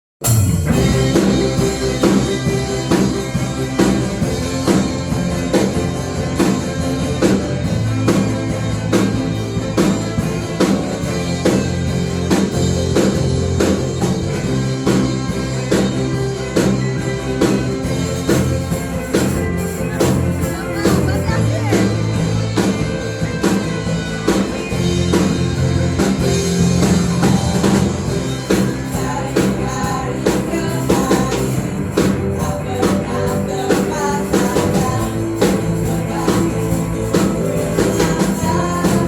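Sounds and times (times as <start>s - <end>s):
drum kit beat: 0.2s - 39.0s
guitar: 0.2s - 39.0s.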